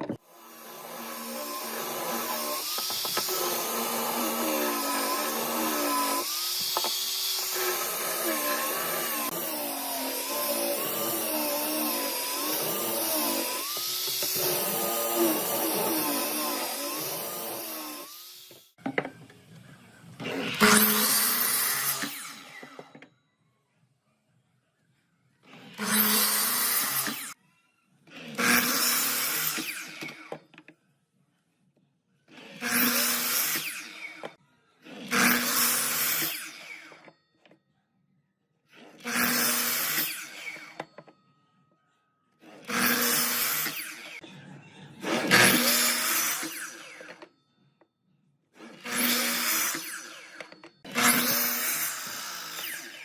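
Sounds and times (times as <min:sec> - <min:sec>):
power tool running: 0:00.0 - 0:18.7, 0:20.2 - 0:22.9, 0:25.5 - 0:27.4, 0:45.0 - 0:47.3, 0:48.6 - 0:53.0.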